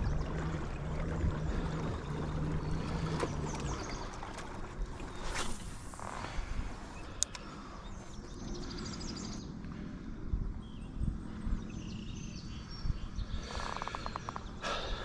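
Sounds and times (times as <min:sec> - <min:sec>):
water washing around a hull: 0:00.0 - 0:06.8
low steady hum: 0:00.0 - 0:15.0
short scrape: 0:05.2 - 0:06.6.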